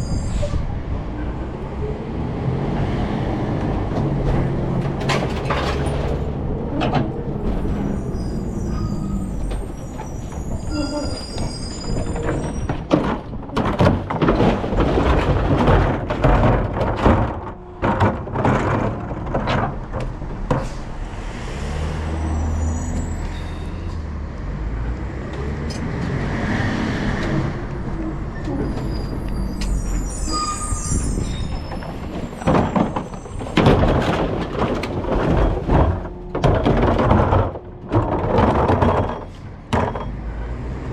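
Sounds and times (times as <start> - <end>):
clattering and banging: 3.6 - 20.9, 28.4 - 40.4.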